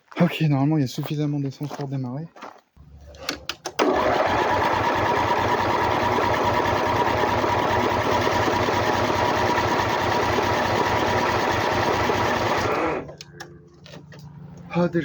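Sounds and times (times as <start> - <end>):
starter motor cranking engine: 3.2 - 13.5.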